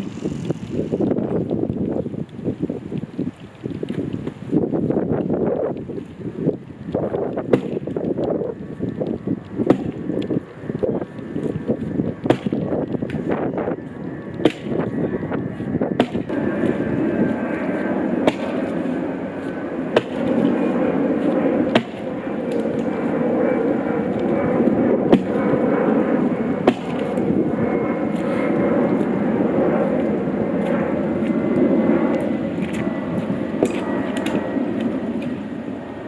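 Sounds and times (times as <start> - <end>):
steady rushing drone: 0.0 - 2.8, 4.3 - 36.0
axe chopping into tree trunk: 7.5 - 7.9, 9.6 - 10.0, 12.2 - 13.2, 14.4 - 14.8, 16.0 - 16.3, 18.2 - 18.6, 20.0 - 20.4, 21.7 - 22.0, 25.1 - 25.4, 26.6 - 27.0.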